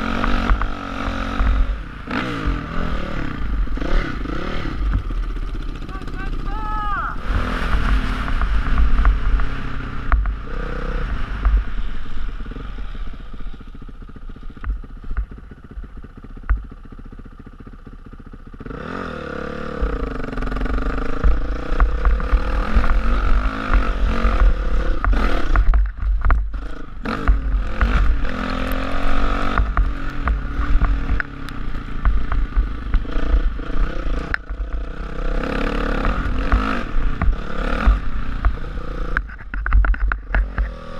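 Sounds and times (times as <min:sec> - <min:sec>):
dirt bike engine revving: 0:00.0 - 0:40.9
wind rumbling on microphone: 0:07.0 - 0:16.7, 0:19.7 - 0:40.9.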